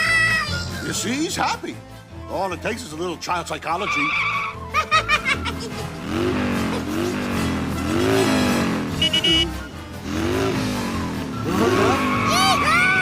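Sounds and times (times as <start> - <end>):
short high beep: 9.0 - 9.5.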